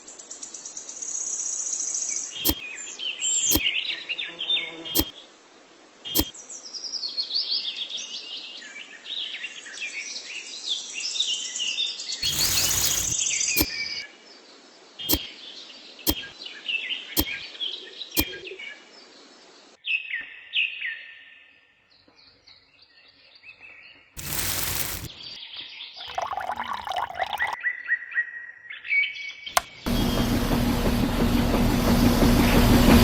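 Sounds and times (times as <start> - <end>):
small birds chirping: 11.4 - 19.7
sharp clicks: 12.2 - 14.0.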